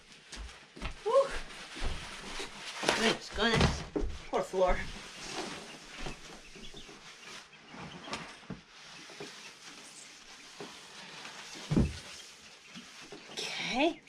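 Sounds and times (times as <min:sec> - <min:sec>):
chicks peeping: 0:04.8 - 0:14.0.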